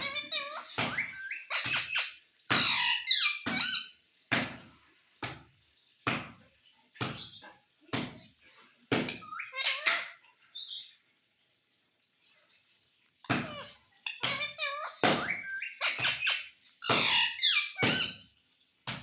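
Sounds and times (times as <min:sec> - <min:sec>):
parrot squawking: 0:00.0 - 0:04.0, 0:09.1 - 0:10.3, 0:13.3 - 0:18.2.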